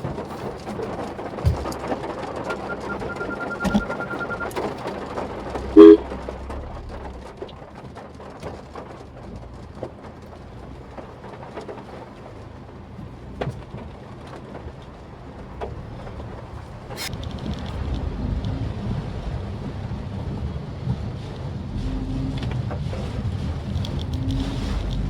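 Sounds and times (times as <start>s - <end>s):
car road and engine rumble: 0.0s - 25.0s
car horn honk: 5.8s - 6.1s.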